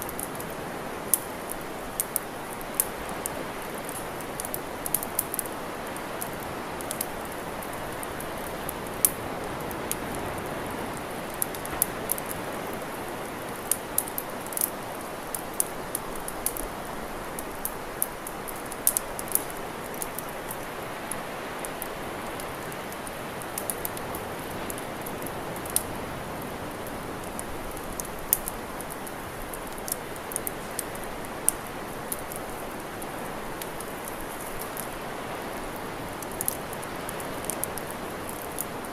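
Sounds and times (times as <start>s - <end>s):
campfire crackling and popping: 0.0s - 38.9s
steady rushing hiss: 0.0s - 38.9s.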